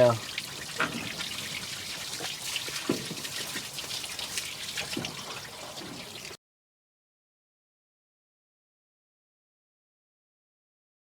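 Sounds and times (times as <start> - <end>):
water trickling and splashing: 0.0 - 6.4.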